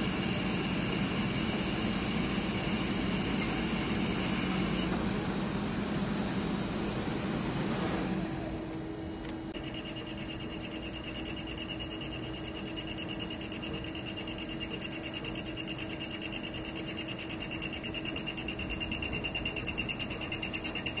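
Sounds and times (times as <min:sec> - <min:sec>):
pulsing electric whine: 0:00.0 - 0:09.0, 0:09.6 - 0:21.0.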